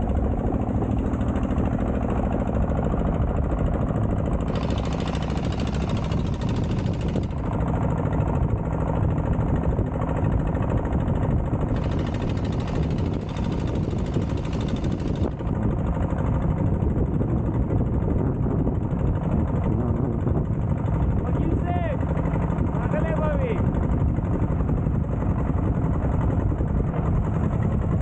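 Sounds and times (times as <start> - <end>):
boat engine chugging: 0.0 - 28.0.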